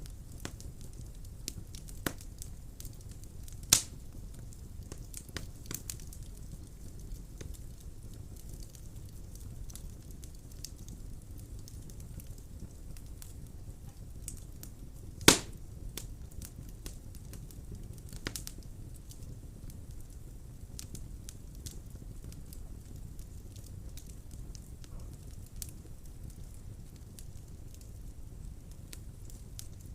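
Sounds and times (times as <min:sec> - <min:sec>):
fire crackling: 0:00.0 - 0:29.9
fire rumbling: 0:00.0 - 0:29.9
loud sharp pop: 0:15.3 - 0:15.6.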